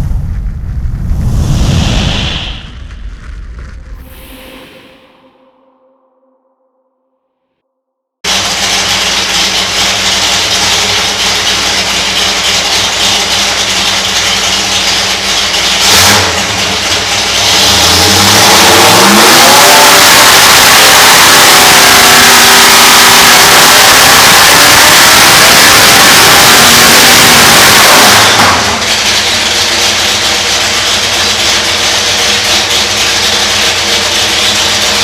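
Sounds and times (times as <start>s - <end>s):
engine revving on a dyno: 8.3s - 35.0s.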